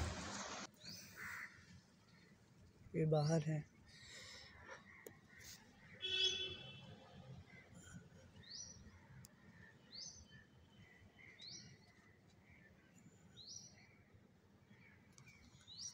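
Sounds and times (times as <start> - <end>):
soft bird chirps: 14.7 - 15.9.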